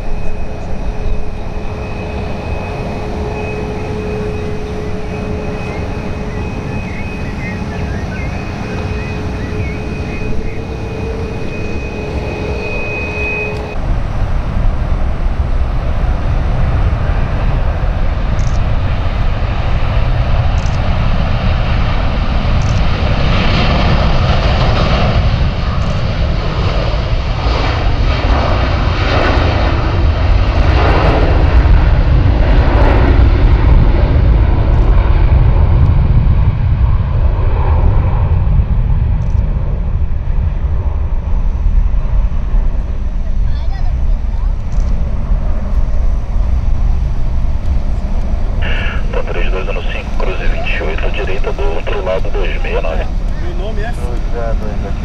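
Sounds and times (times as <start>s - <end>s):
jet engine roar: 0.0s - 55.0s.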